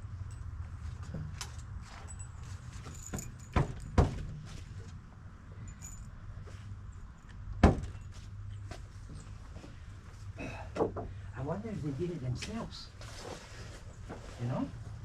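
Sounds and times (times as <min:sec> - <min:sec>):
loud knocks on wood: 0:07.6 - 0:08.0.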